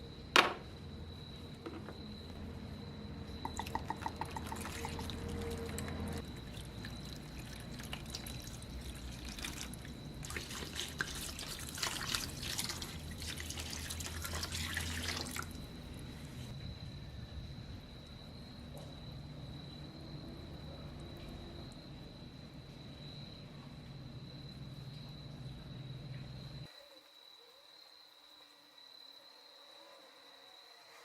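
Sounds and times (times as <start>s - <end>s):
water trickling and splashing: 3.4s - 16.5s.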